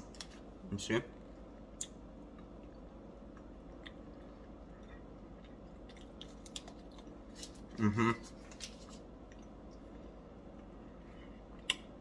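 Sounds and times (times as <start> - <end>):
faint crunchy chewing: 1.8 - 10.8.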